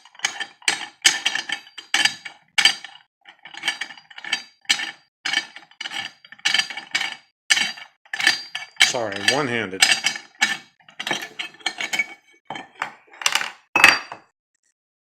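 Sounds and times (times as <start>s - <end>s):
metal parts clinking: 6.7s - 13.5s.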